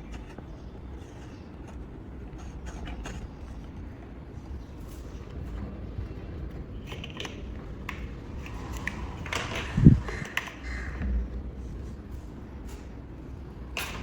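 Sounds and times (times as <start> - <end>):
plastic blocks clicking and rattling: 6.8 - 10.6.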